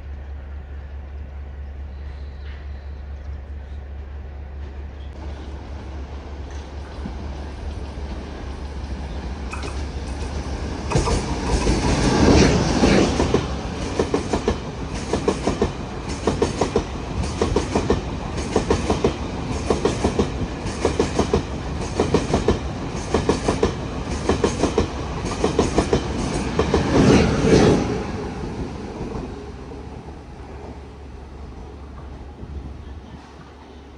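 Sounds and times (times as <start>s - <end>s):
train rolling rush: 0.0s - 33.9s
train wheels clattering over rail joints: 9.5s - 27.2s.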